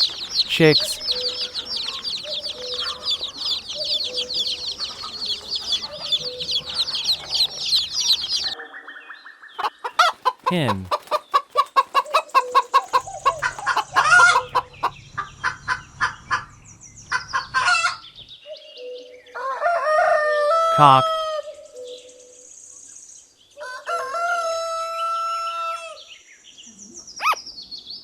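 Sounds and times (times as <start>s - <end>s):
hen clucking: 0.0s - 8.6s, 9.6s - 18.2s
rooster crowing: 1.0s - 8.6s, 12.4s - 16.4s, 19.3s - 21.5s, 23.6s - 26.0s.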